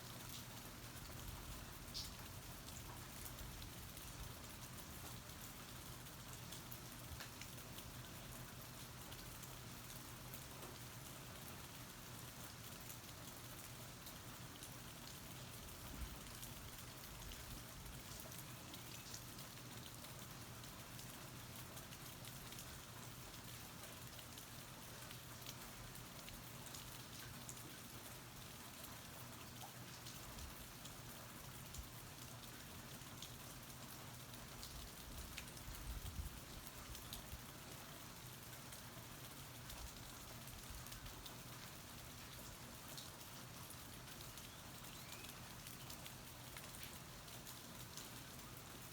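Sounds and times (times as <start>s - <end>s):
steady rain hiss: 0.0s - 48.9s
raindrop ticks: 0.2s - 5.5s, 6.1s - 10.8s, 16.1s - 27.7s, 34.2s - 37.7s.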